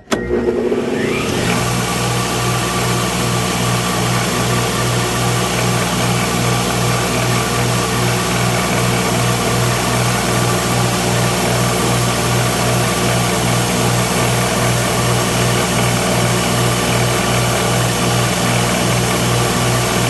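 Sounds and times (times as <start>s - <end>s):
electric grinder running: 0.1s - 20.0s.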